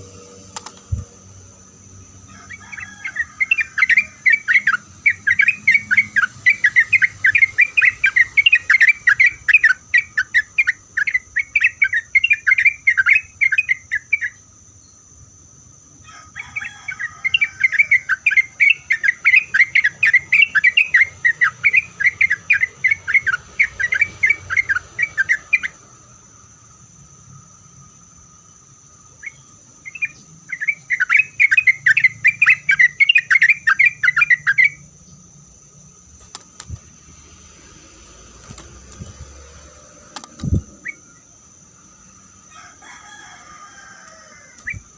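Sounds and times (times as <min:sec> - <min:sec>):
bird singing chattering notes: 0:01.9 - 0:15.0, 0:16.9 - 0:25.8, 0:29.1 - 0:35.4.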